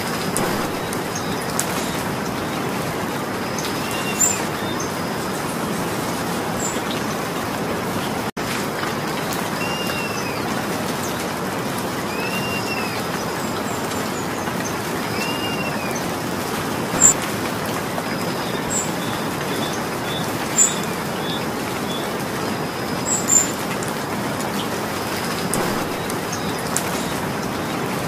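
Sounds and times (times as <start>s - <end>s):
steady rain: 0.0s - 28.0s
loud drops striking close: 0.4s - 1.8s, 25.5s - 27.2s.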